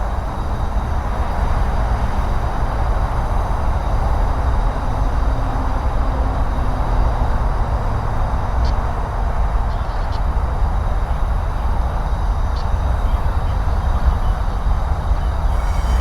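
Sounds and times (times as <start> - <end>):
diesel locomotives rumbling: 0.0 - 16.0.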